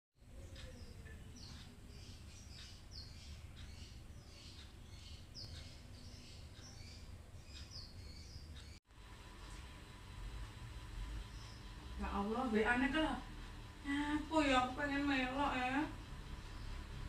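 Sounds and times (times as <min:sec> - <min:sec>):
small bird chirping: 0:00.2 - 0:08.8, 0:11.2 - 0:12.2.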